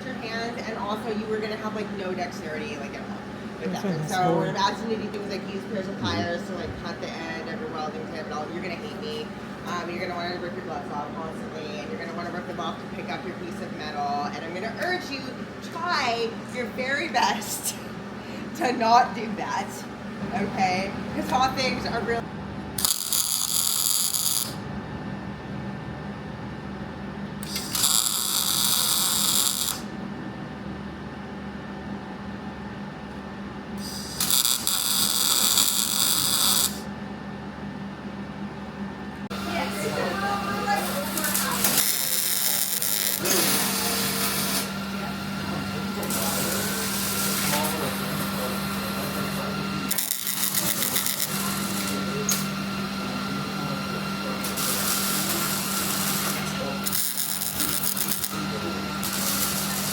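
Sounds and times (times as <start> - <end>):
low electrical hum: 0.0 - 59.9
welding arc sizzling: 22.8 - 24.7, 27.4 - 29.9, 33.8 - 36.9, 40.5 - 44.8, 46.0 - 52.6, 54.4 - 59.9.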